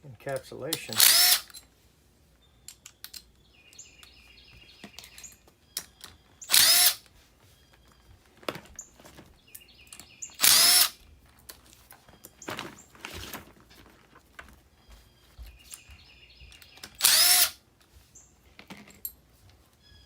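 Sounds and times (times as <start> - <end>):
hardware and tools clinking: 0.2 - 1.8, 2.6 - 13.9, 14.8 - 19.8
cordless drill whirring: 0.9 - 1.6, 6.4 - 7.1, 10.4 - 11.0, 16.8 - 17.6.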